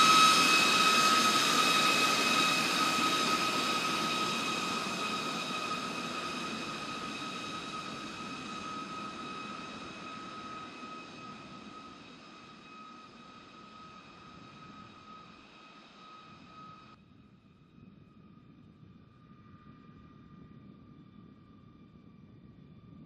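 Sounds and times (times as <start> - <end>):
jet aircraft engines whining: 0.0 - 17.0.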